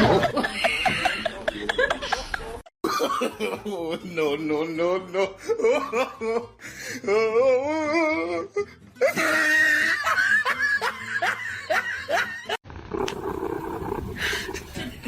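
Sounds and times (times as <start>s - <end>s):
person laughing: 9.0s - 12.6s.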